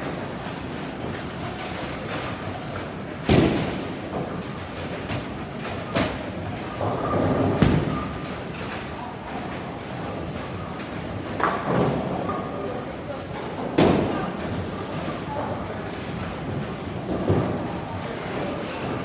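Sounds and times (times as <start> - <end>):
heavy thump: 7.5 - 8.4.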